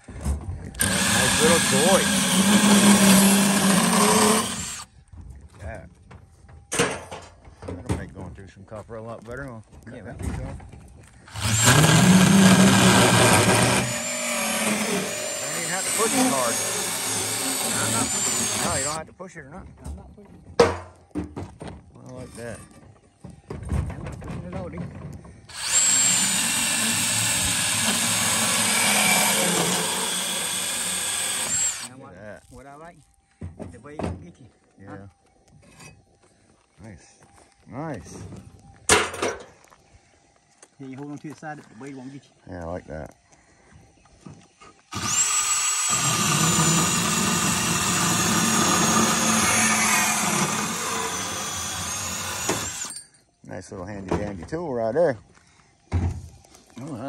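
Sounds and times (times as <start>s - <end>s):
power saw cutting pipe: 0.7s - 4.9s, 11.3s - 19.0s, 25.5s - 32.0s, 44.9s - 53.0s.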